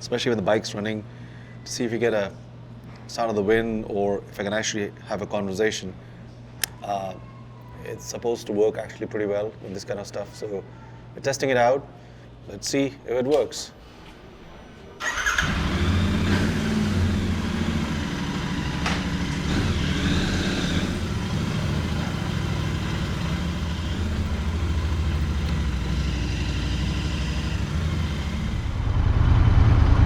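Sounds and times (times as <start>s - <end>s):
motorcycle engine running: 15.1s - 29.0s.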